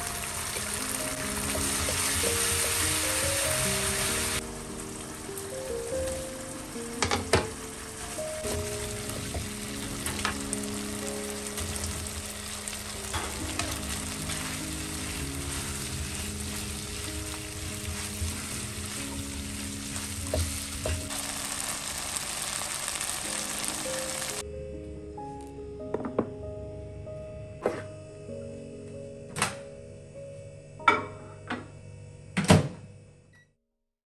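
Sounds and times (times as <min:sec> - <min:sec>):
food sizzling in a wok: 0:00.0 - 0:24.4.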